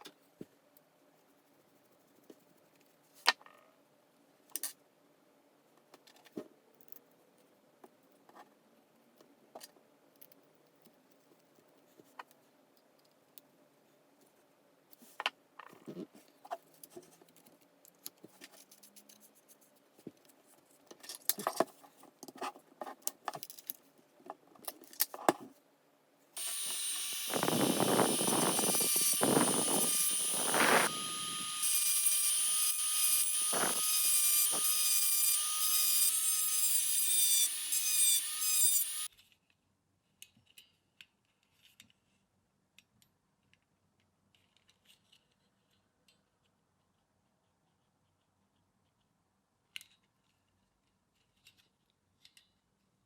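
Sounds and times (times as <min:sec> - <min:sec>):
power tool whining: 0:26.4 - 0:39.1
tool scraping: 0:26.4 - 0:39.1.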